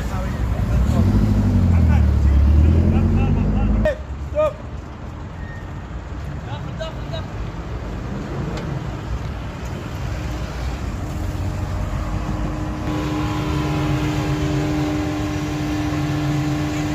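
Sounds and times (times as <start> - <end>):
car engine running: 12.6 - 16.9.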